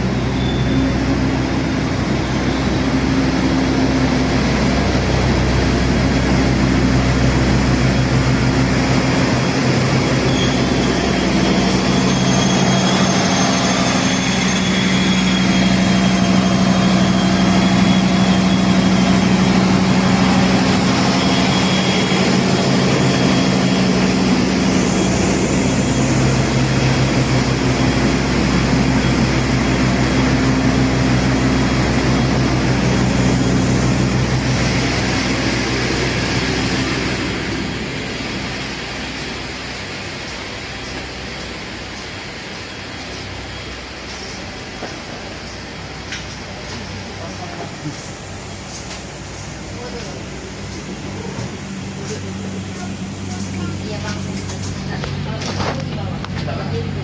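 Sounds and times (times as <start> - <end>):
faint high whine: 0.0 - 44.6
diesel train engine humming: 0.0 - 57.0.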